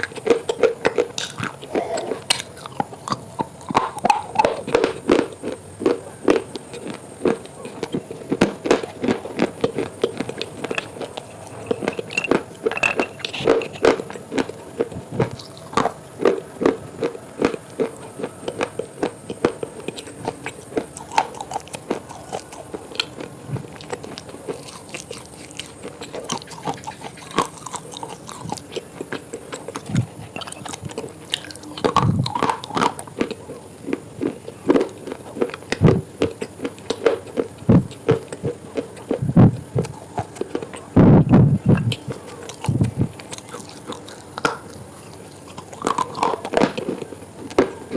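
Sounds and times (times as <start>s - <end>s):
crunchy bites and chewing: 0.0s - 47.9s.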